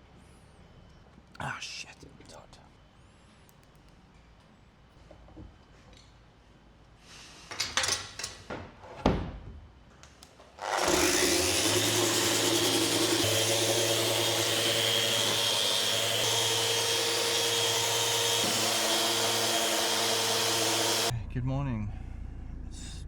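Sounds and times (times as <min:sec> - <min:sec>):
machine whirring hum: 0:10.6 - 0:21.1.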